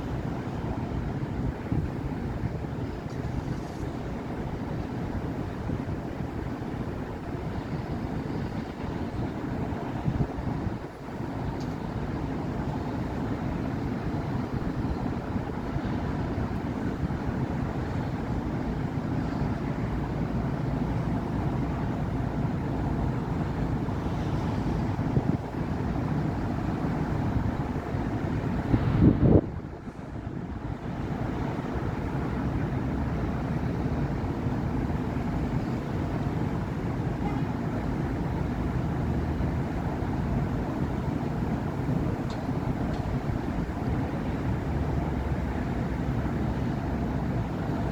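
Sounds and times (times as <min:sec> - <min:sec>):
low rumble of road traffic: 0:00.0 - 0:47.9.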